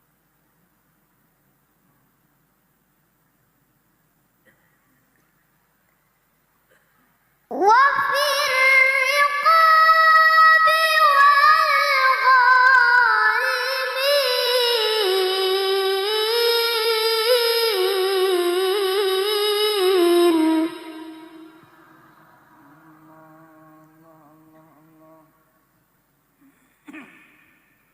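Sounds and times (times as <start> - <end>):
child reciting melodically: 7.5 - 25.5.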